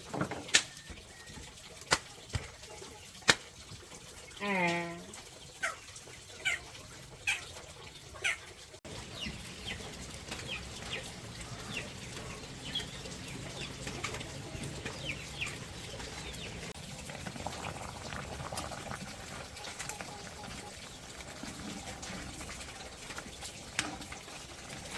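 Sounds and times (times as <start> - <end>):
birds chirping: 4.2 - 16.8, 19.0 - 22.9.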